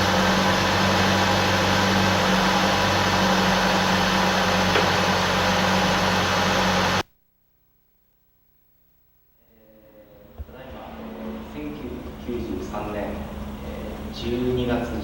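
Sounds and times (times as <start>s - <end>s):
car engine running: 0.0s - 7.0s, 10.7s - 15.0s.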